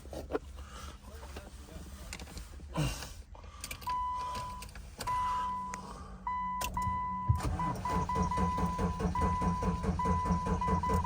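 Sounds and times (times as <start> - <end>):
car warning chime beeps: 3.8 - 11.0.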